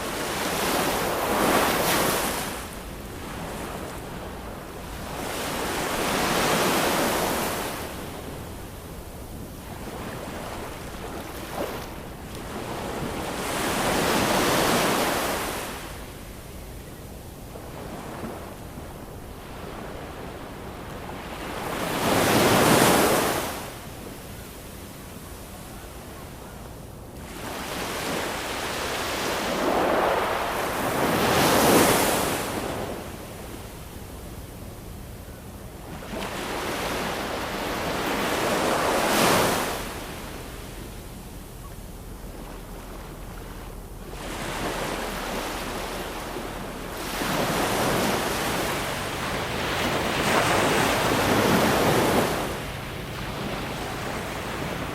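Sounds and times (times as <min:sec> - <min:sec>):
ocean waves breaking on shore: 0:00.0 - 0:26.6, 0:27.2 - 0:54.9.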